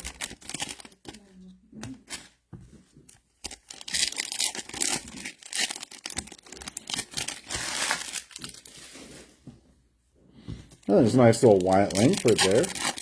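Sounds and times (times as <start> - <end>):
wrapper tearing and crinkling: 0.0 - 1.2, 3.4 - 9.3, 10.8 - 13.0.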